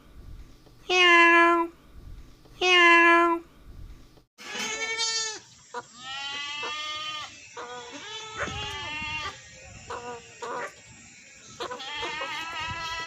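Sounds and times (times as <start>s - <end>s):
goats bleating: 4.4s - 10.7s, 11.6s - 13.0s.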